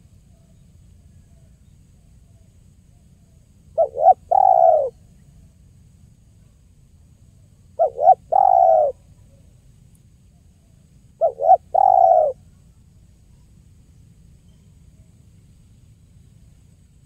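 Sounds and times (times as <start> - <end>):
dove cooing: 3.8 - 5.0, 7.8 - 9.0, 11.2 - 12.5.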